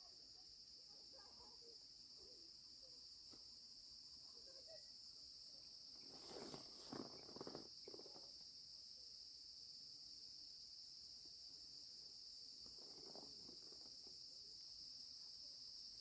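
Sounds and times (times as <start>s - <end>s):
high-pitched insect chorus: 0.0s - 16.0s
rustling: 6.0s - 8.1s.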